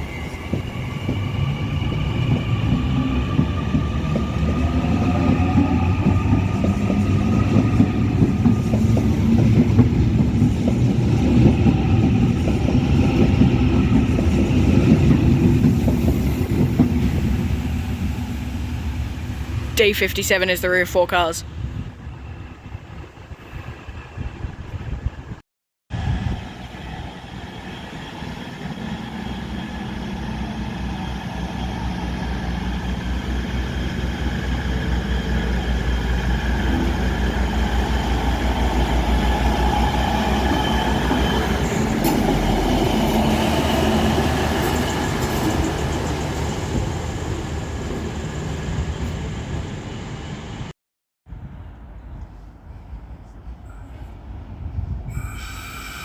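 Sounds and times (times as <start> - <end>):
train motors humming: 26.0 - 50.7.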